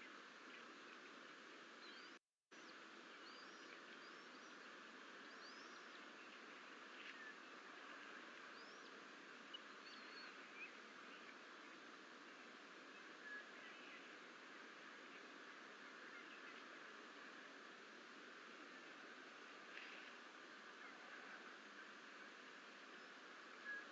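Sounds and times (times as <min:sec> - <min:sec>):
steady low hiss: 0:00.0 - 0:23.9.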